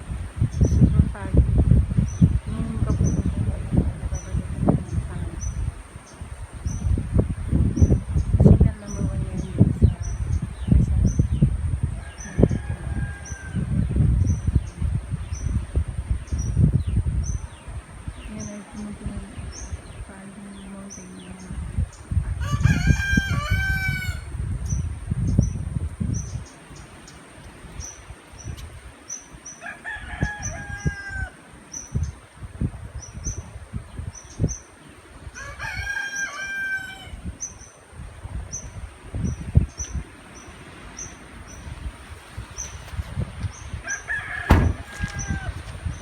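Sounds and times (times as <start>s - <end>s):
wind buffeting microphone: 0.0s - 46.0s
rooster crowing: 12.0s - 13.8s, 22.4s - 24.3s, 29.6s - 31.4s, 35.4s - 37.3s, 43.8s - 45.8s.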